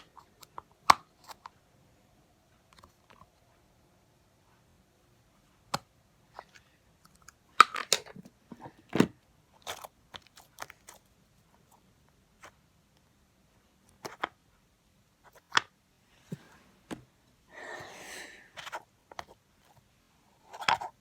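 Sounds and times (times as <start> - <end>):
clicks and scrapes of small object: 20.4 - 21.0.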